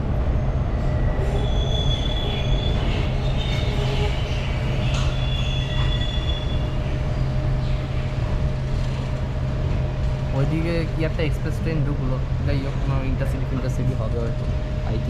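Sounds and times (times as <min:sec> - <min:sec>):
train rumbling: 0:00.0 - 0:15.0
train wheels squealing: 0:00.3 - 0:07.0.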